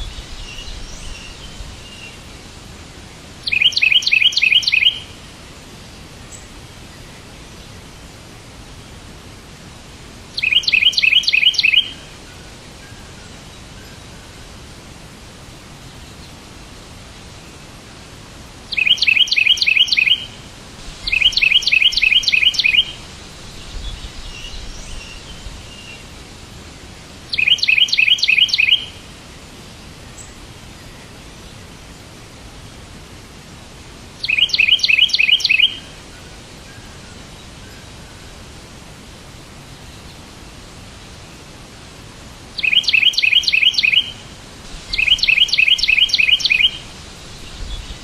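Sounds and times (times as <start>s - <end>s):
songbird chirping: 0.0s - 8.3s, 10.3s - 14.6s, 18.7s - 31.8s, 34.1s - 38.5s, 42.4s - 48.0s
steady background hiss: 0.0s - 48.0s
faint bird twittering: 3.4s - 5.2s, 10.4s - 14.4s, 18.7s - 20.4s, 21.0s - 26.2s, 27.3s - 29.1s, 34.2s - 38.4s, 42.6s - 48.0s.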